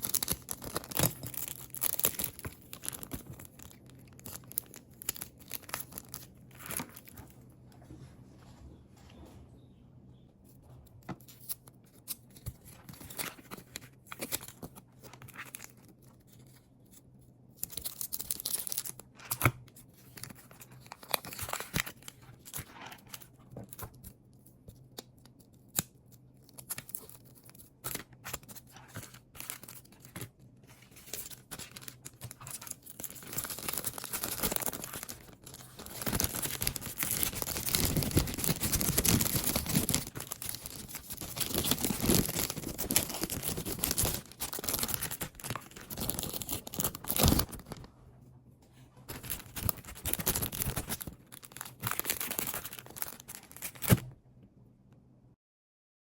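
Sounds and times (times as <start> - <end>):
packaging tearing: 0.0 - 7.1, 26.6 - 47.9, 49.1 - 54.1
packaging rustling and crinkling: 0.0 - 7.4, 27.8 - 47.9, 49.1 - 54.1.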